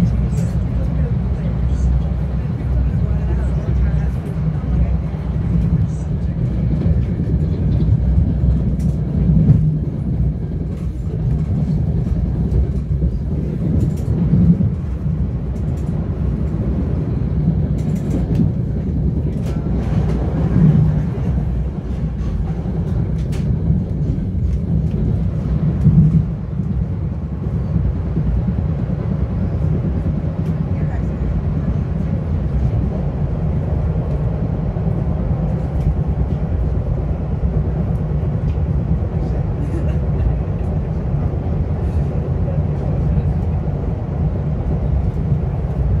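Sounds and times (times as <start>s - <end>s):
train rumbling: 0.0s - 46.0s.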